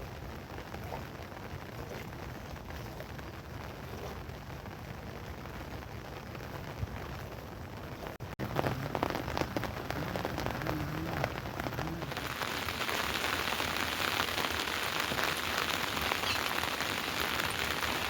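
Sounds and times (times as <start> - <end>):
rain dripping and pattering: 0.0 - 18.0
steady rain hiss: 0.0 - 18.0.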